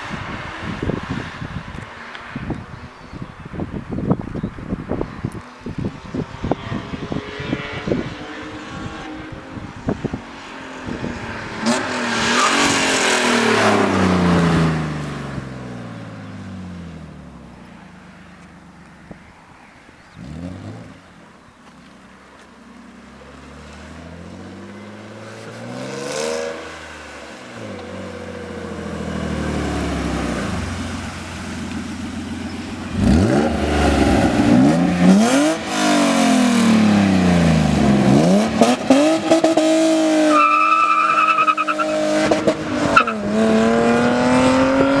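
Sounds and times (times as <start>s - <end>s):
car engine revving: 6.1s - 18.7s, 23.1s - 45.0s.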